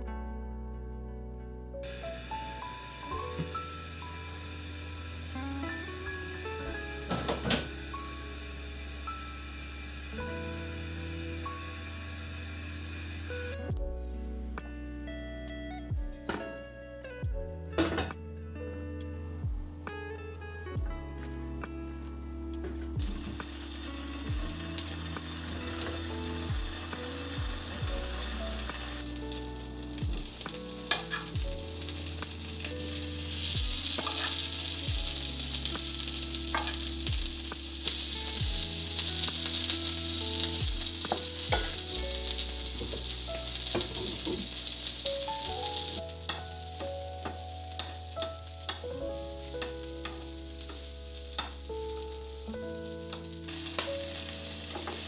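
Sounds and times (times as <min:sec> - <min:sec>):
soft background music: 0:00.0 - 0:55.0
food sizzling in a pan: 0:01.8 - 0:13.6, 0:23.0 - 0:55.0.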